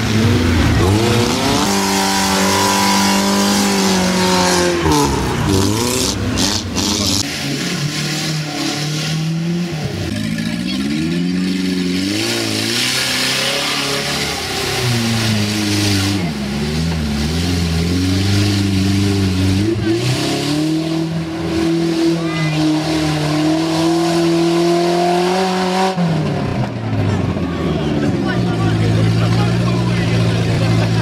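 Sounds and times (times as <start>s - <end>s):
car engine revving hard: 0.0s - 26.7s.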